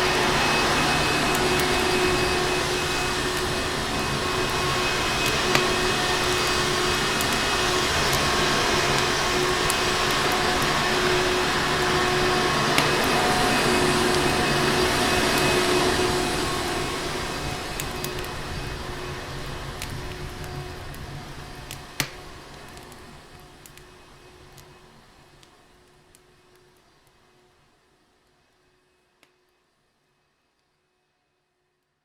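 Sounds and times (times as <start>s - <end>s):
vacuum cleaner motor running: 0.0s - 24.0s
fireplace crackles: 0.0s - 28.4s.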